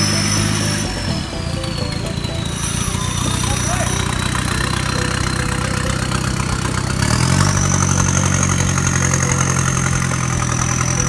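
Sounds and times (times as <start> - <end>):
high whine: 0.0 - 11.0
vehicle engine running: 0.0 - 11.0.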